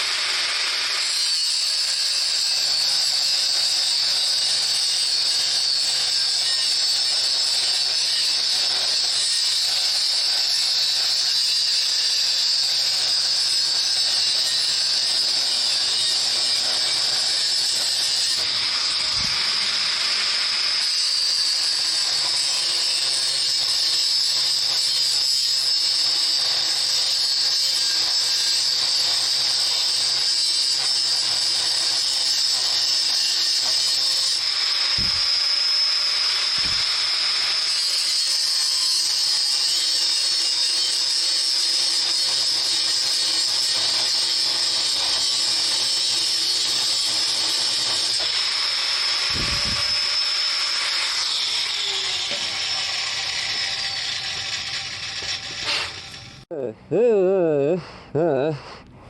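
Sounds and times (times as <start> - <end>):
lathe whining: 15.3 - 22.5, 33.6 - 37.9, 46.7 - 56.5.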